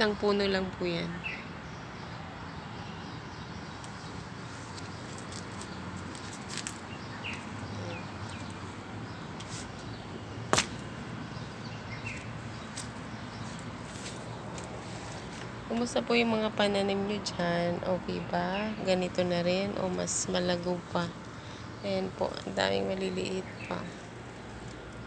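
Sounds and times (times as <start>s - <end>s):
steady background noise: 0.0s - 25.0s
sharp click: 10.6s - 10.9s.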